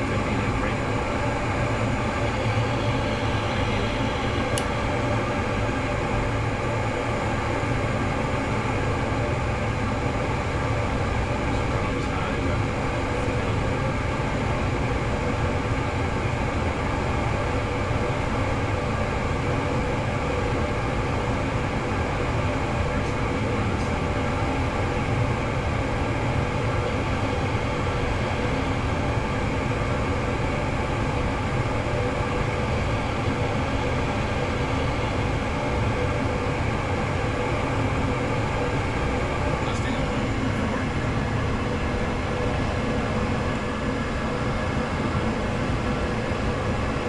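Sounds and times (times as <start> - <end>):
furnace low rumble: 0.0 - 17.4
steady hum: 0.0 - 47.0.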